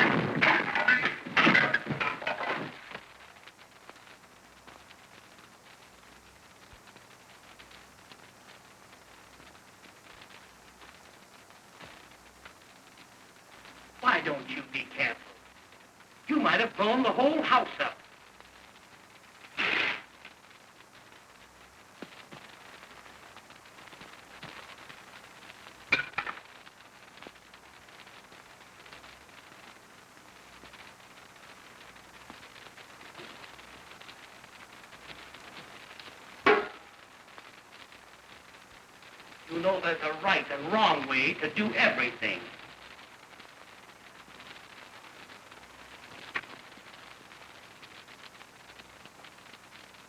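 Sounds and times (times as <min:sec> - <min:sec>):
film soundtrack hiss and crackle: 0:00.0 - 0:50.0
dishes clinking together: 0:26.0 - 0:26.4.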